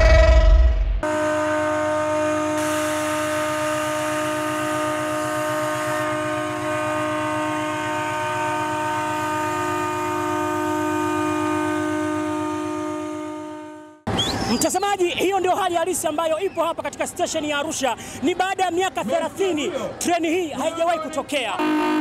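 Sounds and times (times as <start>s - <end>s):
train horn blast: 1.0s - 14.1s, 21.6s - 22.0s.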